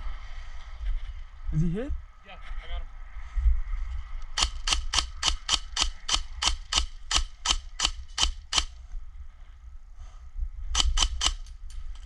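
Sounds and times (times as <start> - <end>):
airsoft gun firing single shots: 4.4 - 8.8, 10.8 - 11.5.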